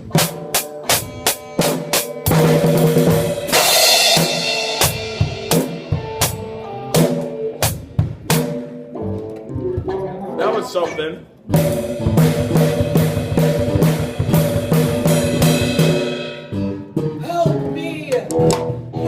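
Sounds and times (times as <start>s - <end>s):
bass drum and snare beat: 0.0s - 8.7s, 11.5s - 17.2s.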